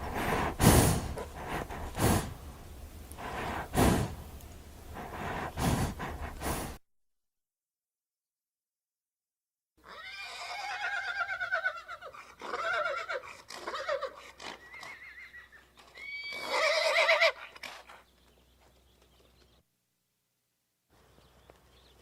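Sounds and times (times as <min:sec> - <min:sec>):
horse whinnying: 0:09.8 - 0:17.9.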